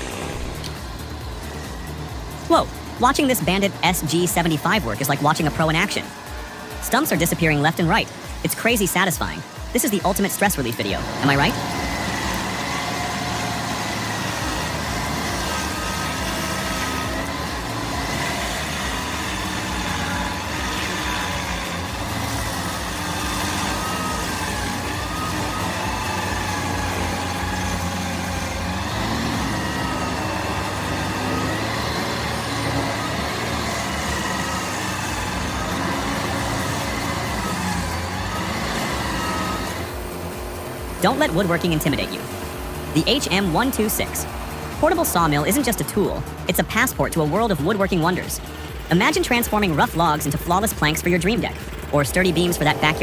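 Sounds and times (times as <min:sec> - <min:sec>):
stump grinder engine running: 0:00.0 - 0:53.0.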